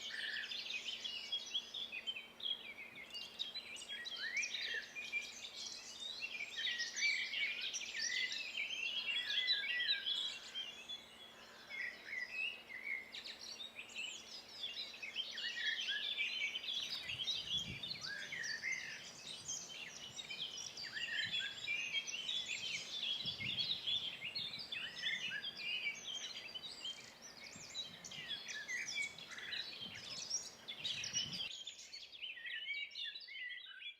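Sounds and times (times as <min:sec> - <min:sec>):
songbirds singing: 0:00.0 - 0:33.9.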